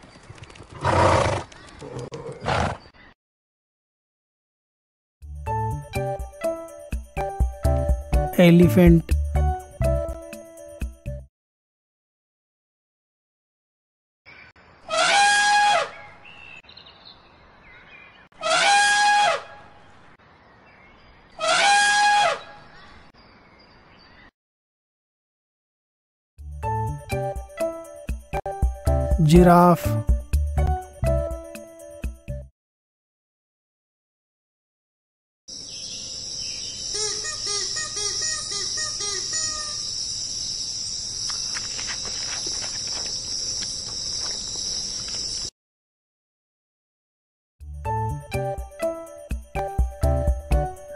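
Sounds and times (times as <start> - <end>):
faint clicks: 1.4 - 2.4
high-pitched insect drone: 35.5 - 45.5
bird calling short notes: 36.9 - 39.9.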